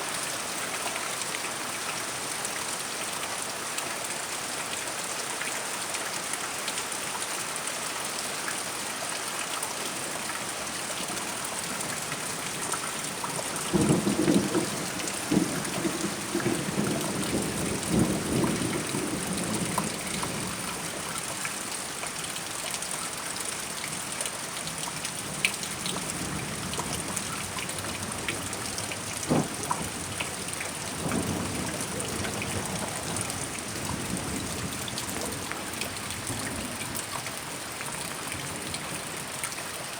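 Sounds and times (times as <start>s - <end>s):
steady rain: 0.0s - 39.9s
thunder rumbling and cracking: 13.4s - 20.8s, 26.1s - 36.8s.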